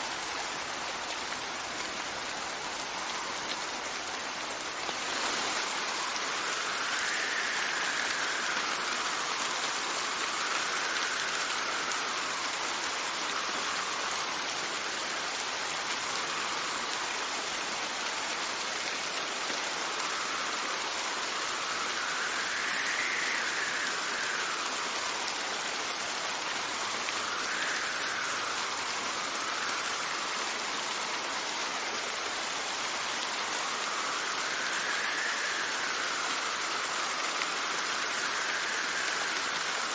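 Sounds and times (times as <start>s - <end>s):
heavy rain falling: 0.0s - 39.9s
wind gusts whistling: 2.0s - 15.0s, 19.8s - 31.4s.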